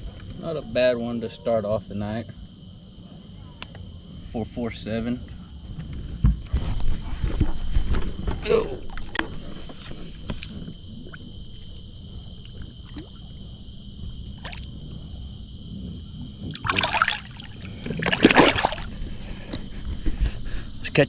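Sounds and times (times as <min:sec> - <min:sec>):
water trickling and sloshing: 0:07.3 - 0:15.5, 0:16.2 - 0:20.2
water splashes: 0:10.2 - 0:13.5, 0:14.4 - 0:14.8, 0:16.4 - 0:19.1.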